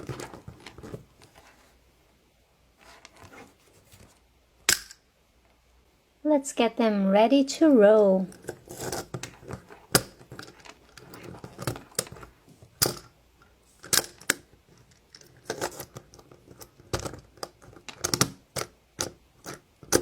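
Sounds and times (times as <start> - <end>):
plastic toy parts snapping together: 4.7 - 5.0.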